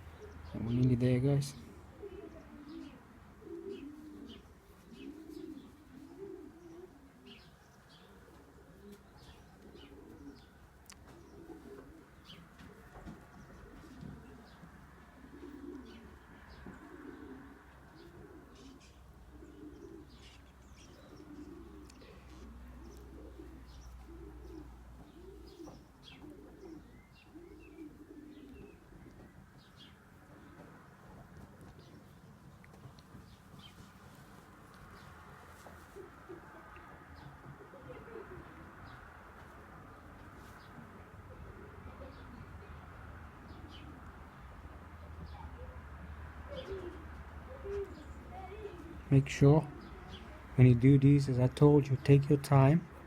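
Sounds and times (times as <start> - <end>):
pigeons cooing: 0.0 - 53.0
small birds chirping: 0.0 - 53.0.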